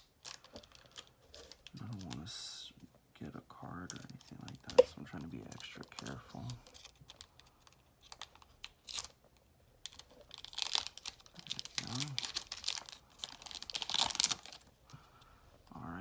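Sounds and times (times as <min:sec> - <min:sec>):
foil wrapper crinkling: 0:00.0 - 0:02.2, 0:05.6 - 0:09.2, 0:09.8 - 0:14.8.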